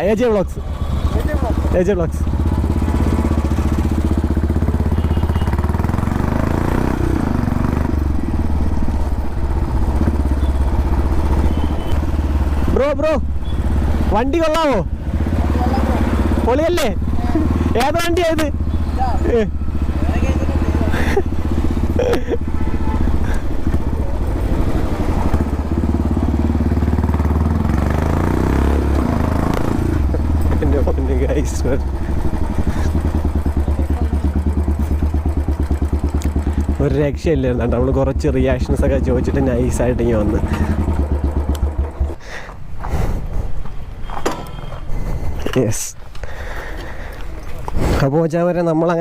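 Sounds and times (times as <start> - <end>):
motorcycle engine running: 0.0 - 42.4
motorcycle engine thumping: 28.9 - 30.9, 40.2 - 43.0.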